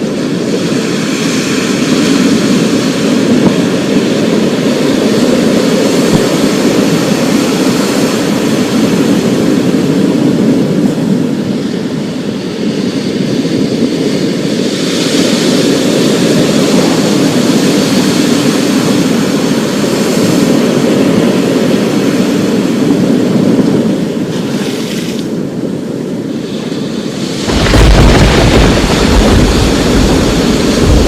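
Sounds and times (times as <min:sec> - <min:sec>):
storm noise rushing: 0:25.3 - 0:31.0
thunder rumbling: 0:27.1 - 0:31.0.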